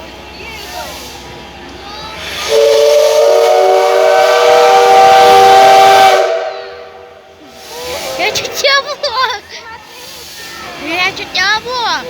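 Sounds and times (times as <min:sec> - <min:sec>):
steam hissing: 0:00.5 - 0:12.0
steam locomotive whistle: 0:02.2 - 0:08.5.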